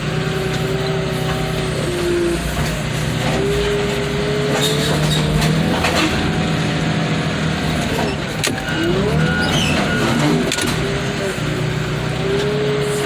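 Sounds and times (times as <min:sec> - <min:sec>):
diesel engine under load: 0:00.0 - 0:13.0
hydraulic whine: 0:00.0 - 0:13.0
metal body cracking and creaking: 0:00.5 - 0:11.1.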